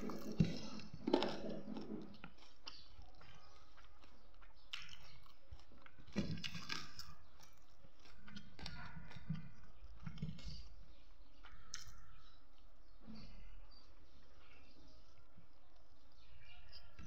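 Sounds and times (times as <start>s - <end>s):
person chewing: 0.0s - 12.7s.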